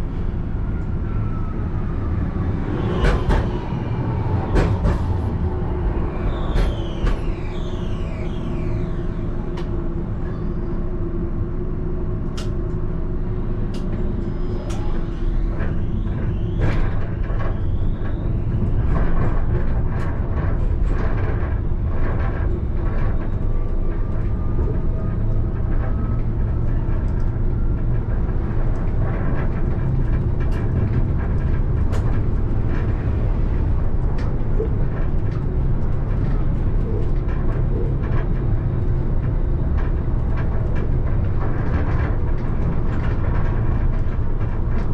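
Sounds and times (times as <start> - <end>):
tram wheels rumbling on rail: 0.0 - 44.9.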